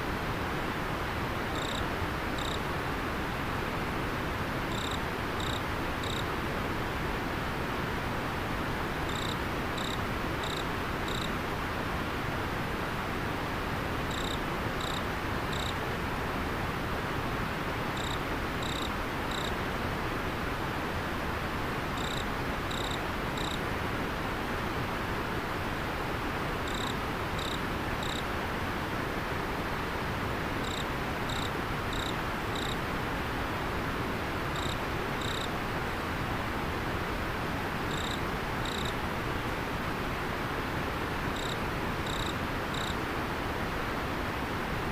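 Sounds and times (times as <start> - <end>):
insect chirping: 1.5 - 1.8, 2.4 - 2.6, 4.7 - 6.3, 9.1 - 11.3, 14.1 - 15.8, 18.0 - 19.5, 22.0 - 23.6, 26.7 - 28.2, 30.6 - 32.8, 34.6 - 35.5, 37.9 - 38.9, 41.4 - 43.0.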